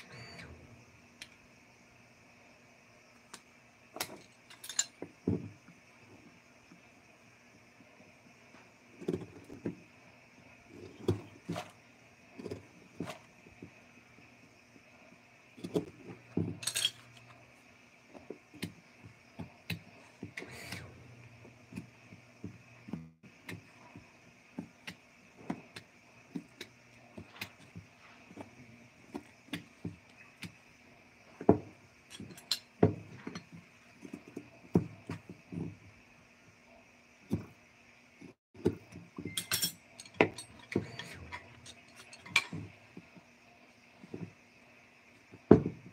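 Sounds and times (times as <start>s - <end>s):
faint steady hum: 0.0s - 45.9s
hand tools tapping and clinking: 38.6s - 42.8s.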